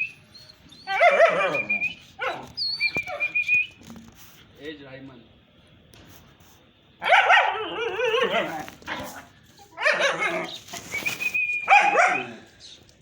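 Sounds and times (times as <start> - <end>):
dog howling with wavering pitch: 0.0 - 3.4, 7.3 - 8.7.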